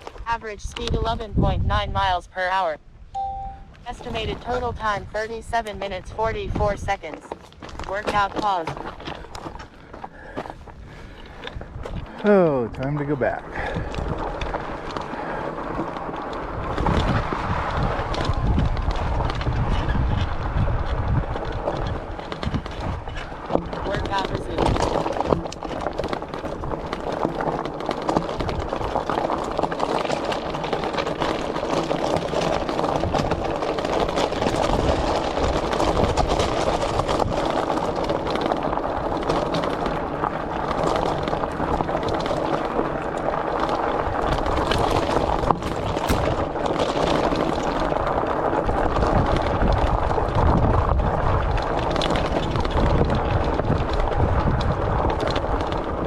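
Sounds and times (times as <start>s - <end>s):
bicycle tyres rolling on path: 0.0s - 3.2s, 3.8s - 56.0s
wind on microphone: 0.0s - 9.0s, 10.6s - 27.5s, 31.1s - 56.0s.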